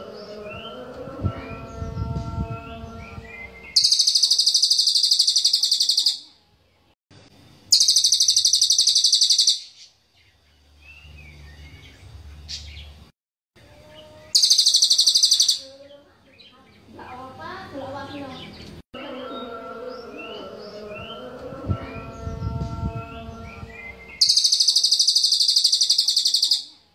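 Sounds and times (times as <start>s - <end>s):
bird high-pitched trills: 0.6s - 6.3s, 7.7s - 9.8s, 13.8s - 15.9s, 20.2s - 26.8s
faint bird chirps: 3.7s - 6.4s, 7.6s - 12.8s, 13.6s - 17.1s, 23.6s - 26.8s.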